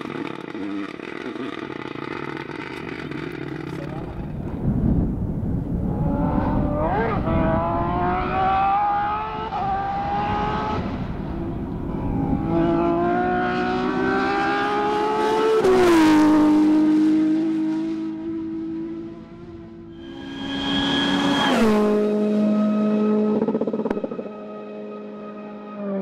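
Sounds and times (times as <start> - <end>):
rally car engine accelerating: 0.0 - 5.1, 5.7 - 26.0.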